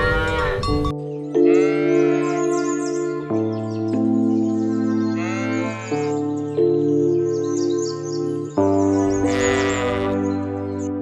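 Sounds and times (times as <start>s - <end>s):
farm animal bleating: 0.0s - 0.7s, 1.3s - 2.8s, 5.1s - 6.3s, 9.0s - 10.4s
music of sustained chords: 0.0s - 11.0s.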